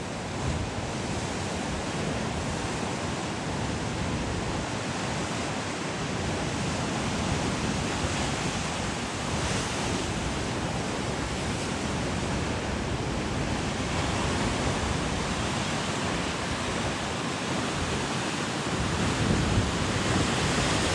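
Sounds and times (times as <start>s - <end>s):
ocean surf washing: 0.0s - 20.9s.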